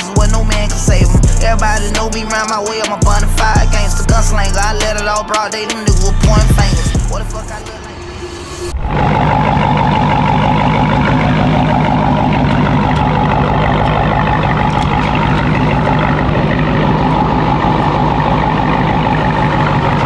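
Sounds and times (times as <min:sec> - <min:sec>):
vehicle engine hum: 0:00.0 - 0:20.0.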